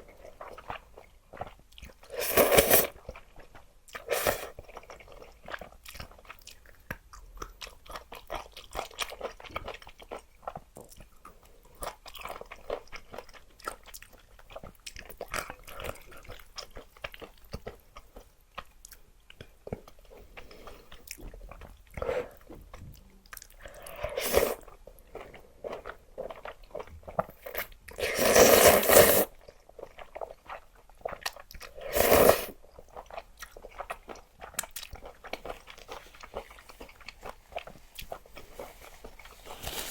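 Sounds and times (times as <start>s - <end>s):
chewing with crunches: 0.0s - 39.9s
noodle slurping: 2.1s - 3.0s, 4.0s - 4.6s, 23.8s - 24.6s, 28.0s - 29.3s, 31.7s - 32.6s.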